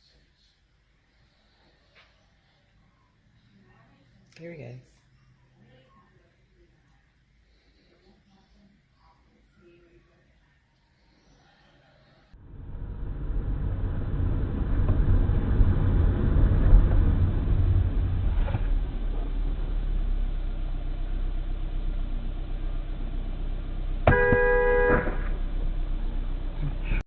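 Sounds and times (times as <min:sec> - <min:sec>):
vehicle engine and road rumble: 0:12.3 - 0:27.0
car horn: 0:24.0 - 0:25.4.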